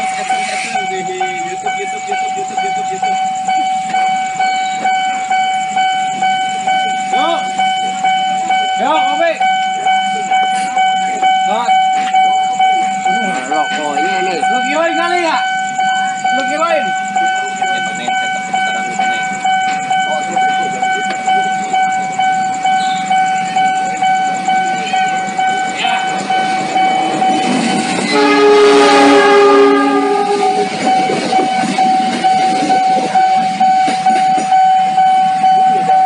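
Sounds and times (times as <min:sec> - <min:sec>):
level crossing alarm bell: 0:00.0 - 0:36.0
train wheel and rail noise: 0:00.0 - 0:36.0
train horn blast: 0:27.8 - 0:30.9.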